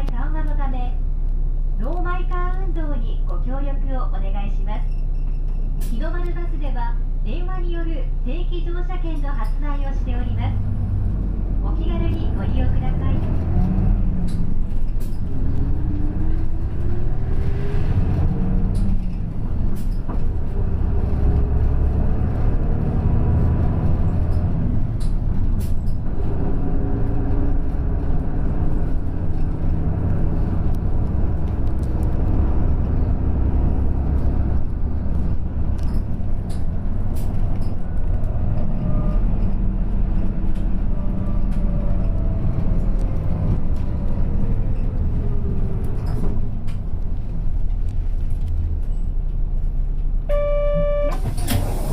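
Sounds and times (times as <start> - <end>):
bus engine rumble and whine: 0.0 - 51.9
light rattles and clicks: 13.2 - 17.5, 18.1 - 33.0.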